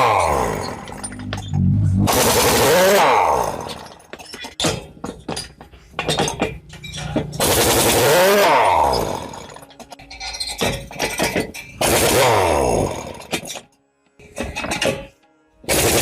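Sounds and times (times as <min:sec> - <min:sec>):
metal tools clinking on metal: 0:00.0 - 0:01.7, 0:03.4 - 0:07.6, 0:08.3 - 0:12.1, 0:13.0 - 0:15.2
loud grinding: 0:00.0 - 0:04.2, 0:07.0 - 0:13.7.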